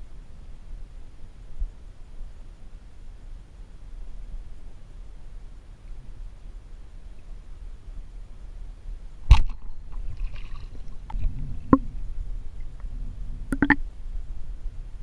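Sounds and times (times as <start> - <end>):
water moving with low rumble: 9.3 - 13.8
sharp knocks and clicks: 13.5 - 13.8.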